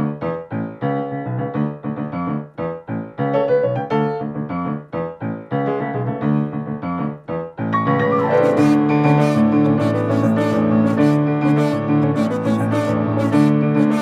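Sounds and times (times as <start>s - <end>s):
piano chords: 7.7s - 14.0s.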